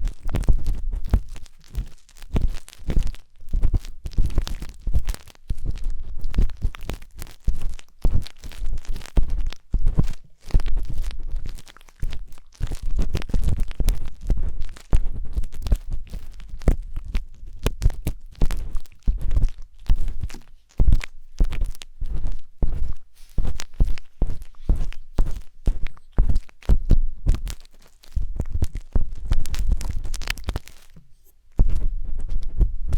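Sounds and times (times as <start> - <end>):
wooden skewer scraping microphone: 6.9 - 32.9
dull low thump: 31.6 - 32.9.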